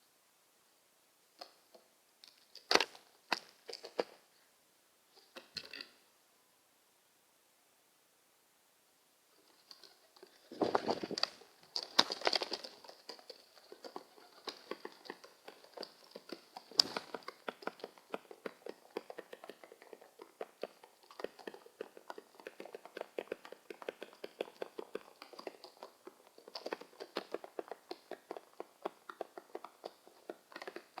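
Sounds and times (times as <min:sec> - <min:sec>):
birds pecking on hard surface: 0:09.4 - 0:31.0.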